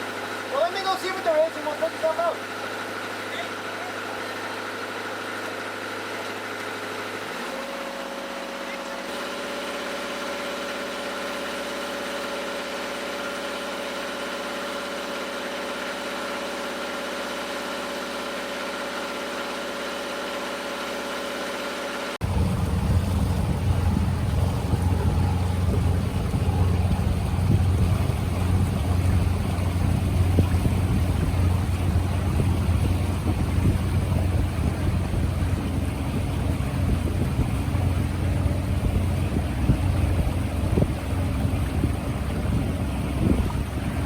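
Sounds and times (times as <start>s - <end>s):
boat engine drone: 0.0s - 44.0s
deep boat engine rumble: 22.2s - 44.0s
wind on microphone: 22.2s - 44.0s.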